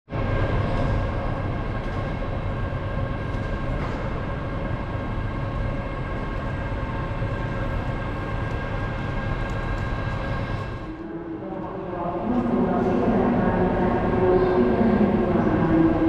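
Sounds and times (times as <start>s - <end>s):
train rumble: 0.1s - 16.0s.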